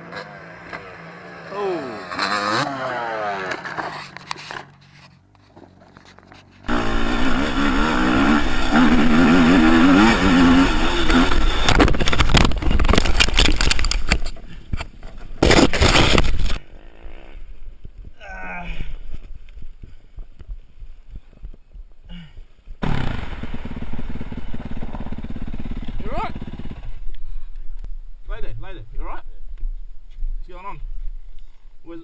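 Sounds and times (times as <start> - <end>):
dirt bike engine revving: 0.0 - 3.9, 6.7 - 12.2, 22.8 - 27.0.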